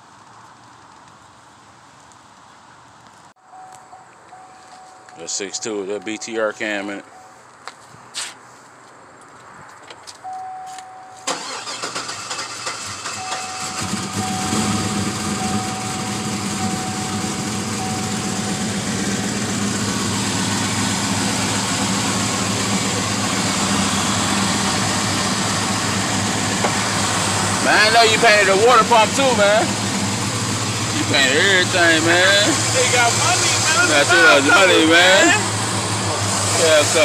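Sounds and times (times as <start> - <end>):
steady warning beeping: 3.5 - 7.4, 13.0 - 29.8
engine firing and idling: 11.2 - 37.0.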